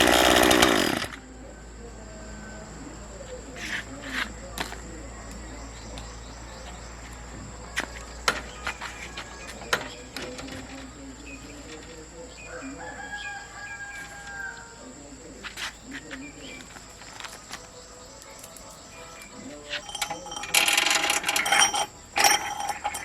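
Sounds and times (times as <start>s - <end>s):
rooster crowing: 0.0s - 3.0s, 7.6s - 10.2s, 12.4s - 15.0s.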